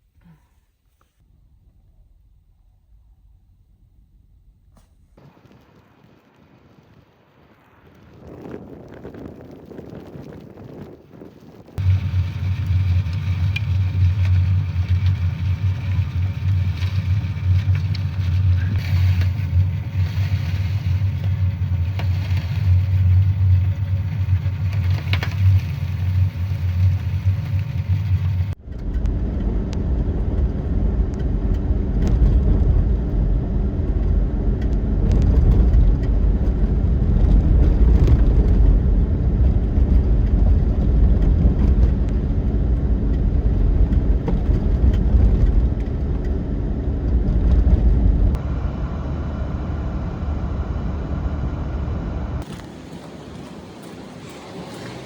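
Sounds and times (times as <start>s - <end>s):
deeper rumbling noise: 1.2s - 55.0s
car engine hum: 11.8s - 55.0s.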